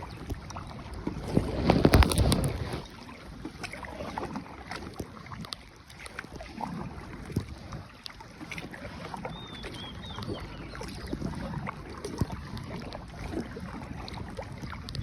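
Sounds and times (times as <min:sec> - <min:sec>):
water sloshing: 0:00.0 - 0:15.0.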